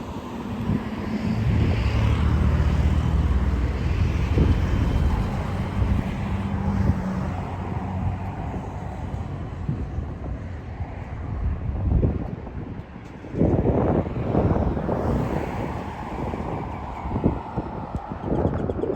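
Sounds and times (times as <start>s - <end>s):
tyre and road noise: 0.0s - 18.9s.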